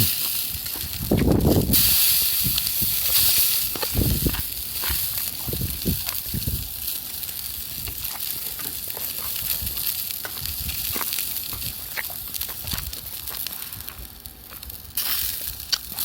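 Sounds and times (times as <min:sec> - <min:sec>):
fire crackling: 0:00.0 - 0:16.0
food sizzling over campfire: 0:00.0 - 0:16.0
dull low thumps: 0:00.6 - 0:01.8.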